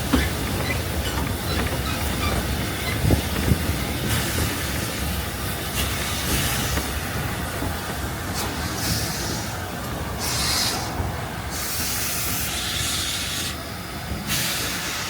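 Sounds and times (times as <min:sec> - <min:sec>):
steam train rumbling: 0:00.0 - 0:15.0
steam hiss: 0:04.0 - 0:07.1, 0:08.3 - 0:15.0.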